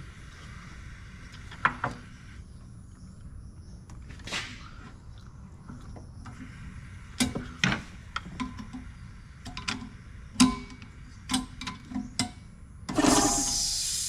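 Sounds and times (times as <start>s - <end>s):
air compressor valve hissing: 12.9s - 14.0s.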